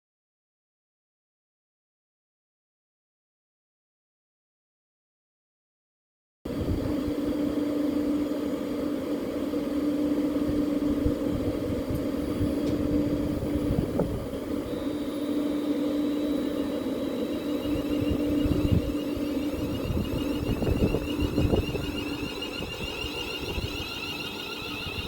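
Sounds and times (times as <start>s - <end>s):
electric train humming: 6.5s - 25.0s
low train rumble: 6.5s - 25.0s.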